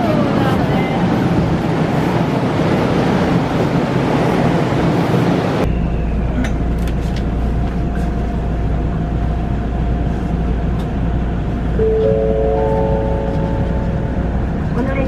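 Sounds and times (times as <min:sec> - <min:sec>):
train carriage rumble: 0:00.0 - 0:15.0.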